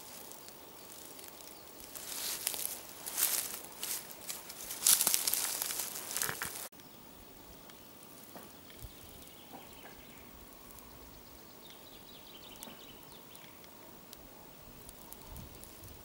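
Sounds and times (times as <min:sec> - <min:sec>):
faint steady hiss: 0:00.0 - 0:16.0
small ticks: 0:14.8 - 0:16.0.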